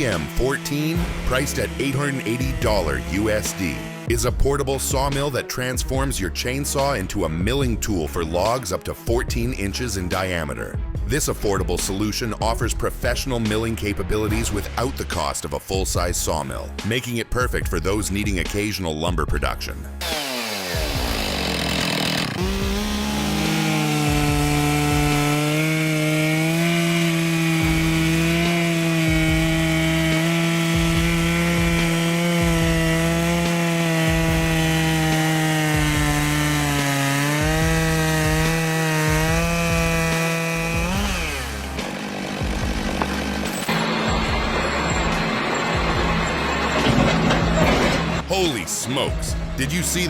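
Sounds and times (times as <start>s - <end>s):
chainsaw cutting wood: 0.0s - 4.2s, 20.0s - 48.2s.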